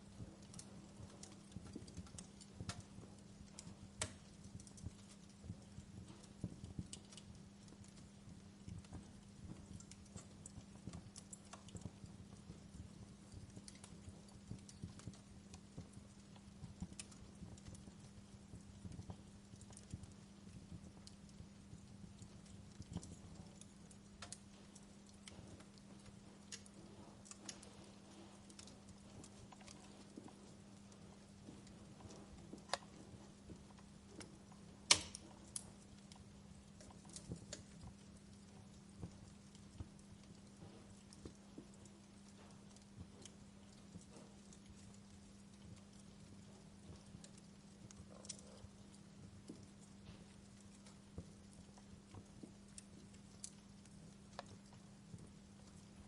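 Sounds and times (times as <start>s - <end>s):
low steady hum: 0.0s - 56.0s
wood fire crackling: 0.0s - 56.0s.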